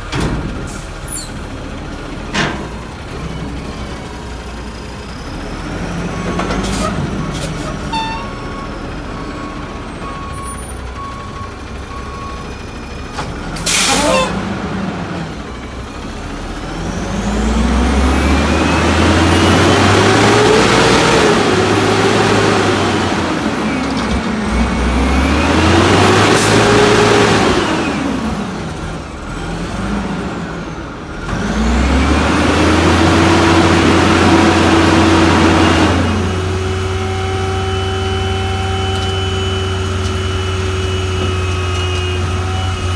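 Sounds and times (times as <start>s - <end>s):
diesel engine revving: 0.0s - 42.9s
dumpsters being lifted and packed: 0.0s - 42.9s
air brake hiss: 13.6s - 14.3s.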